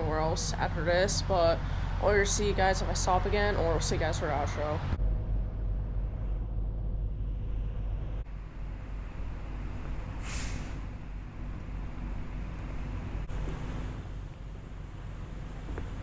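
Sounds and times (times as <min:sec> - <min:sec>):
road and engine rumble: 0:00.0 - 0:16.0
short hiss: 0:10.2 - 0:10.8.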